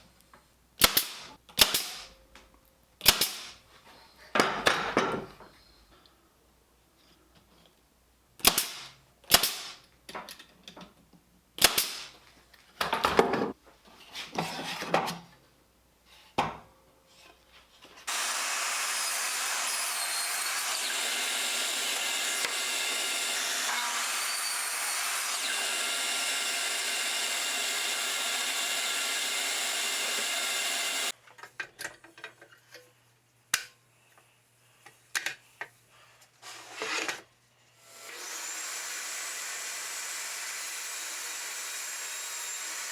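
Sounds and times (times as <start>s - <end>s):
power tool running: 18.1s - 31.1s, 37.9s - 42.9s.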